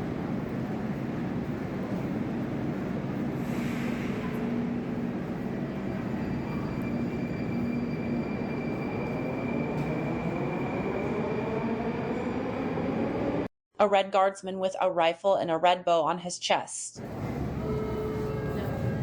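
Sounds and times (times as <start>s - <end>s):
train rail rumble: 0.0s - 13.4s.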